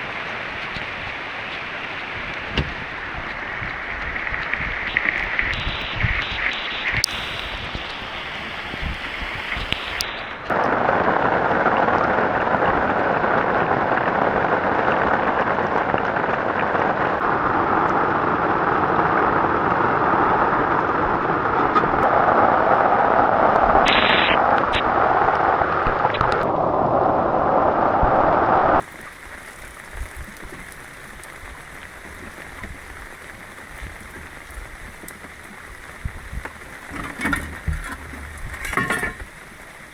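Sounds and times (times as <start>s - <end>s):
quiet steady hiss: 0.0s - 10.5s, 28.7s - 39.9s
heavy rain pouring: 0.0s - 39.9s.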